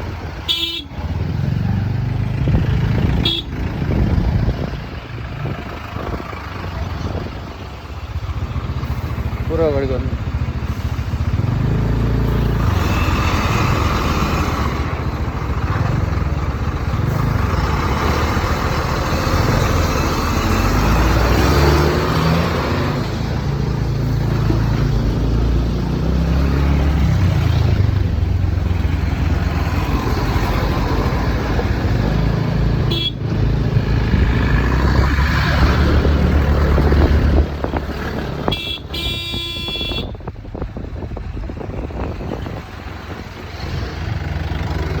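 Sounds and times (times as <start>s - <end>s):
other traffic: 0.0s - 45.0s
vehicle horn: 0.4s - 1.1s, 3.1s - 3.7s, 32.8s - 33.2s, 38.4s - 40.2s.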